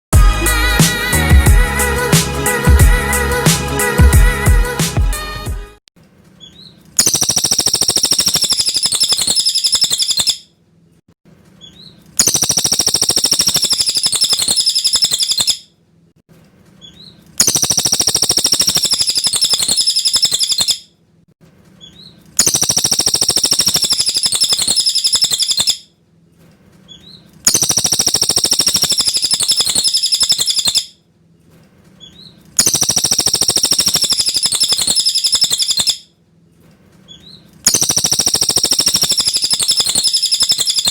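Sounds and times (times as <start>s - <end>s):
bird singing high-pitched song: 6.4s - 10.5s, 11.6s - 15.7s, 16.8s - 20.8s, 21.8s - 25.8s, 26.9s - 31.0s, 32.0s - 36.1s, 37.1s - 40.9s.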